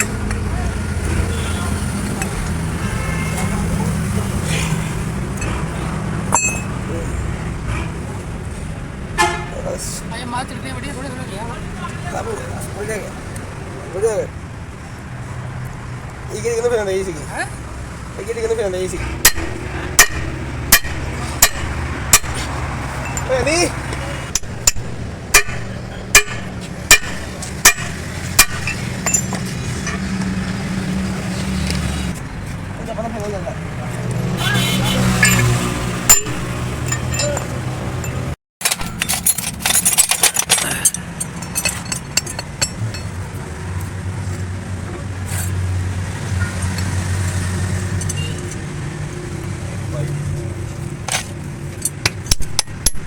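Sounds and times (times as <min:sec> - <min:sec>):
hammer striking steel: 0:06.3 - 0:06.7, 0:19.2 - 0:23.6, 0:24.3 - 0:30.3, 0:35.0 - 0:43.2, 0:51.8 - 0:53.0.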